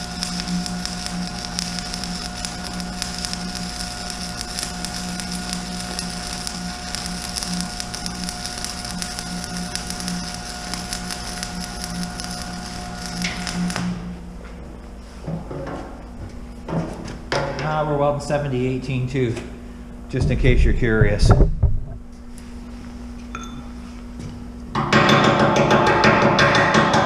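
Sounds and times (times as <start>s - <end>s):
welding arc crackling: 0.0s - 14.3s
welder hum: 0.0s - 27.0s.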